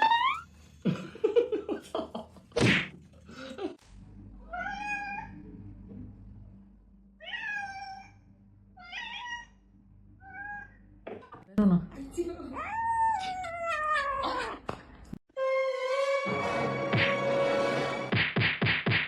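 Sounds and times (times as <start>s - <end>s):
cat meowing: 7.2s - 8.2s, 8.8s - 9.6s, 12.6s - 14.6s.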